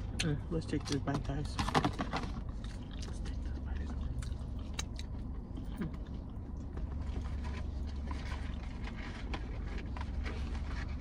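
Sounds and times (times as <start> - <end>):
low hum inside car: 0.0 - 11.0
biting and chewing sandwich: 2.4 - 11.0.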